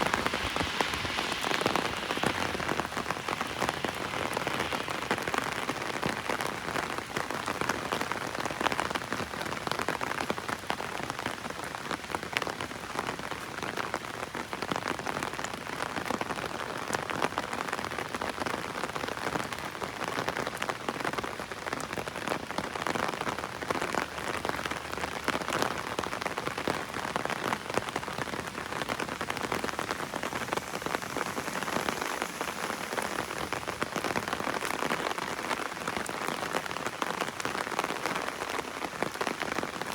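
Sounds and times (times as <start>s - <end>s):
heavy rain on an umbrella: 0.0s - 39.9s.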